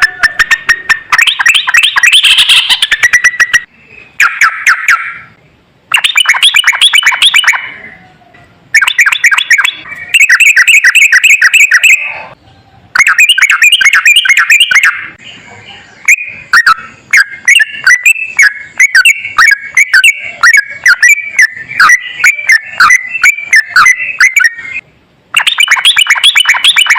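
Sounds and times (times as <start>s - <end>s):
bird singing chattering runs: 16.0s - 24.8s.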